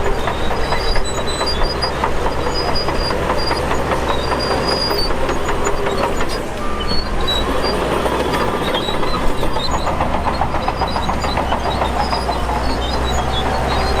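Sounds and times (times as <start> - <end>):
bulldozer diesel engine drone: 0.0 - 14.0
steel tracks clanking: 0.0 - 14.0
track gear squealing: 0.0 - 14.0.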